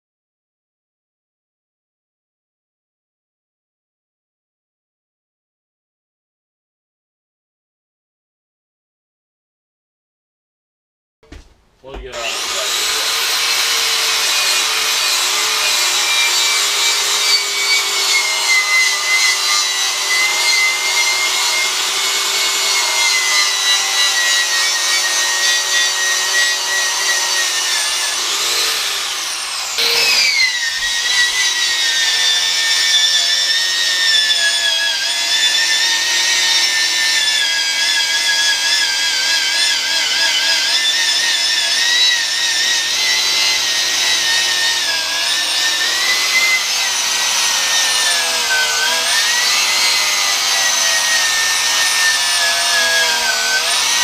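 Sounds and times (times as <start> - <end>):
angle grinder grinding metal: 12.0 - 54.0.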